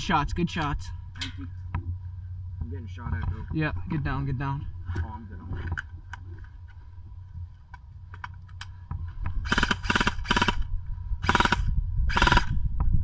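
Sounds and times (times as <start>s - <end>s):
airsoft rifle firing bursts: 9.4s - 12.5s.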